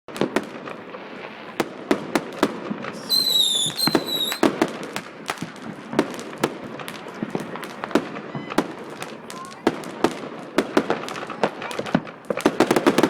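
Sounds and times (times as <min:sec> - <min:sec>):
fireworks crackling and banging: 0:00.1 - 0:13.0
firework whistle: 0:02.8 - 0:04.7, 0:07.2 - 0:09.4.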